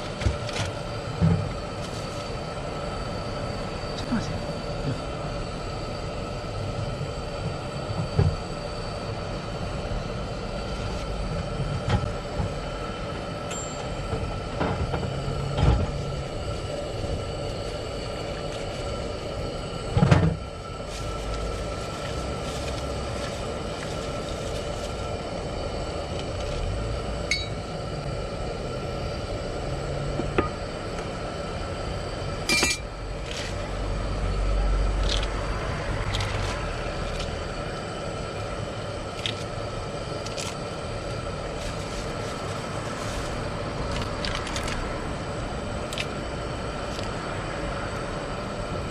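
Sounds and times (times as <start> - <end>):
steady mechanical hum: 0.0 - 48.9.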